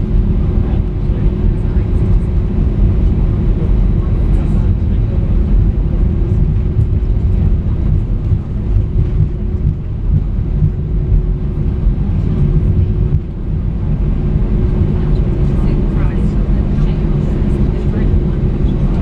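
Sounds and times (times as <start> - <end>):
airplane cabin rumble: 0.0 - 19.0
faint steady hum: 0.0 - 19.0.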